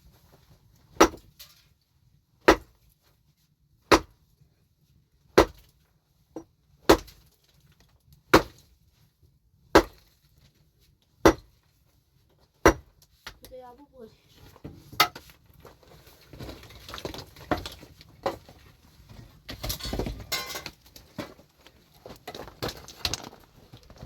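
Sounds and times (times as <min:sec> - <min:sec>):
hand tool chopping hard material: 0:01.0 - 0:01.3, 0:02.4 - 0:02.7, 0:03.9 - 0:04.1, 0:05.3 - 0:05.7, 0:06.8 - 0:07.3, 0:08.3 - 0:08.6, 0:09.8 - 0:10.0, 0:11.2 - 0:11.5, 0:12.6 - 0:13.4.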